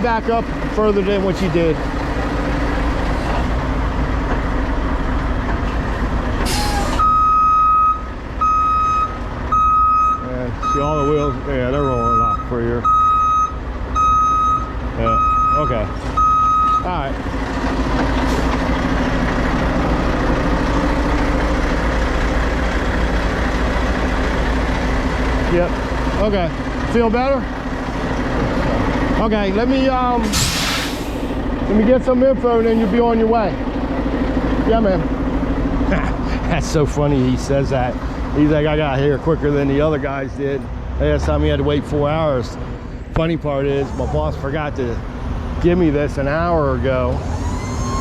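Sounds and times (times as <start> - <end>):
diesel truck engine running: 0.0 - 48.0
air brake hiss: 6.4 - 7.0, 30.3 - 31.4
reversing beeper: 6.5 - 17.0, 46.5 - 48.0.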